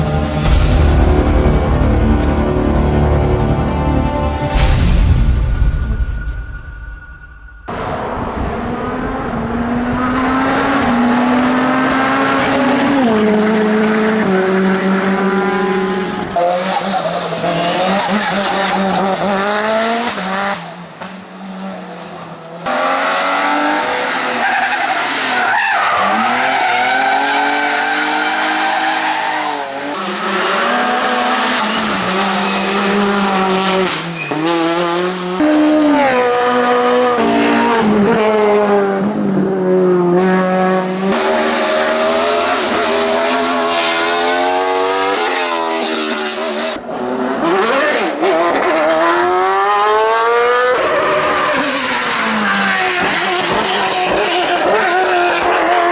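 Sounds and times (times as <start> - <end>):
race car engines revving: 7.7 - 55.9
tyre squeal: 24.2 - 35.0.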